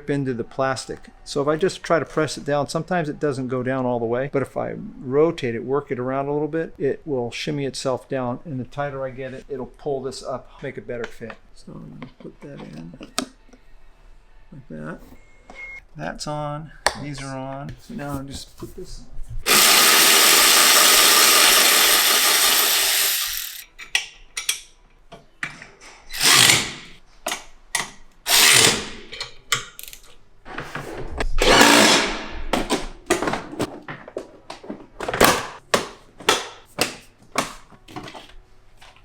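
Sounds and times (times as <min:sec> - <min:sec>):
power drill running: 0:19.5 - 0:23.6, 0:26.1 - 0:26.9, 0:28.3 - 0:28.9
clicks and knocks of tools: 0:23.6 - 0:26.0, 0:27.2 - 0:28.0.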